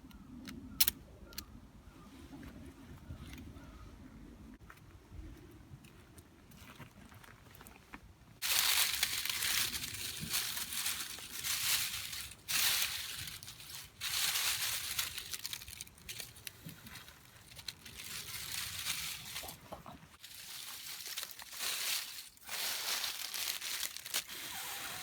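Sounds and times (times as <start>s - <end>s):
crinkling rustling handling noise: 8.4s - 25.0s.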